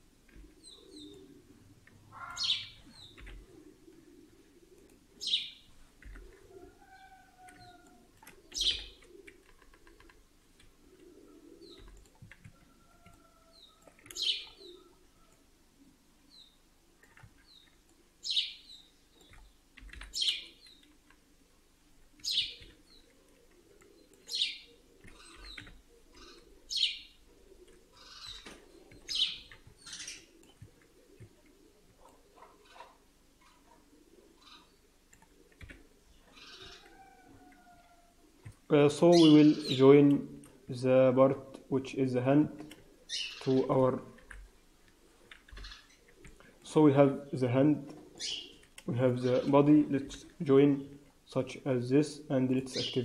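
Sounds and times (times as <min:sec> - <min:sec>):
bird chirping: 0:00.3 - 0:04.2, 0:05.2 - 0:10.0, 0:10.8 - 0:21.0, 0:22.1 - 0:44.4, 0:45.2 - 0:53.0.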